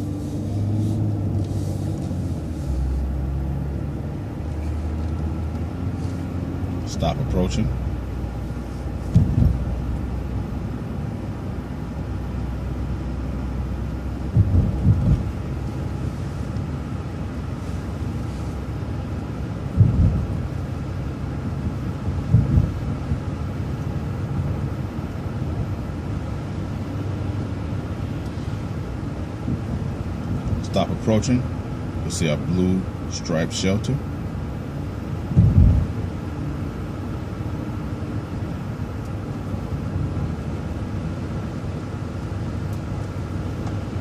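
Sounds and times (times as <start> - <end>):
bus engine and road rumble: 0.0 - 44.0
heavy thumps over bumps: 9.1 - 9.7, 14.3 - 15.3, 19.7 - 20.4, 22.2 - 23.2, 35.3 - 35.9.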